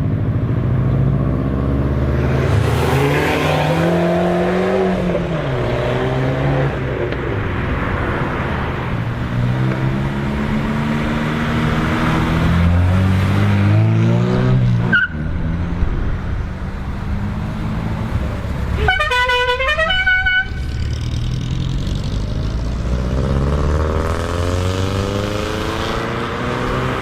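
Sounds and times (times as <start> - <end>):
car engines pulling away: 0.0 - 18.8, 20.5 - 27.0
engine revving: 0.8 - 7.2, 9.2 - 15.0, 20.4 - 27.0
car horn: 18.7 - 20.9.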